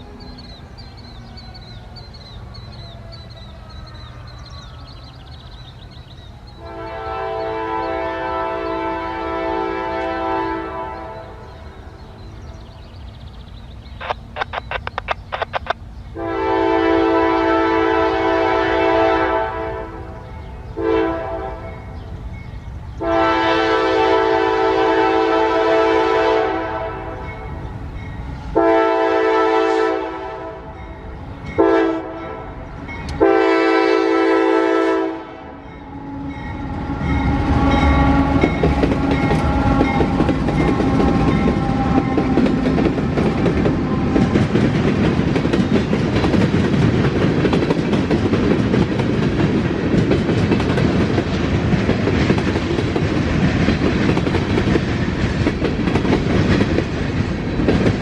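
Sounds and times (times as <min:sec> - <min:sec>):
locomotive engine rumble: 0:00.0 - 0:58.0
train chime horn: 0:06.5 - 0:12.6, 0:16.1 - 0:44.3
wheels clattering over rail joints: 0:37.1 - 0:58.0.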